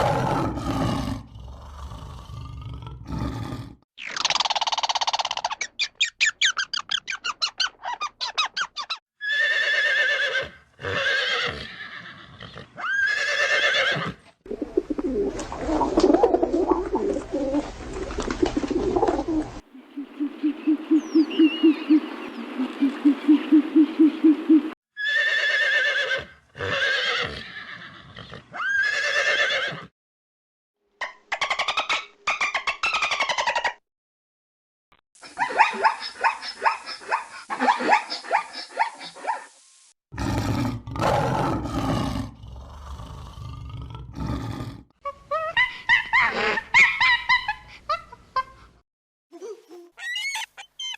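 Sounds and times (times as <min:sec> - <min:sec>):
rough noisy animal sound: 0:00.0 - 0:03.8, 0:40.2 - 0:44.9
horse neighing: 0:09.2 - 0:14.2, 0:25.0 - 0:29.9
bird chirps: 0:19.8 - 0:24.7, 0:50.0 - 0:50.9.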